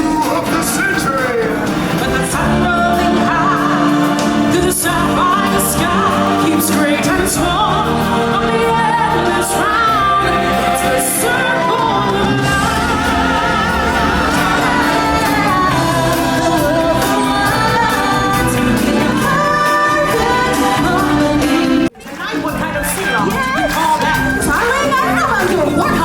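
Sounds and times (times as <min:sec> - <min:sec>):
band with drums: 0:00.0 - 0:26.0
voices singing long notes: 0:01.7 - 0:21.8.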